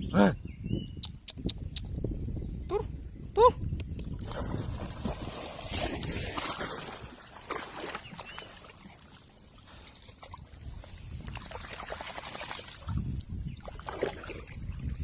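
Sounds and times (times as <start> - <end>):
water sloshing and splashing: 4.1 - 15.0.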